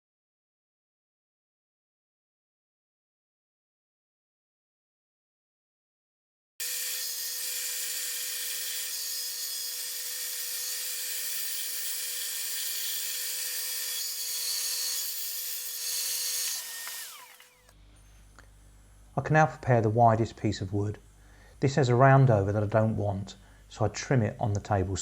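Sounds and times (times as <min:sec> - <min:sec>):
bandsaw motor hum: 0:06.6 - 0:17.8
motor winding down: 0:06.6 - 0:17.8
blade hissing on wood: 0:13.7 - 0:17.7.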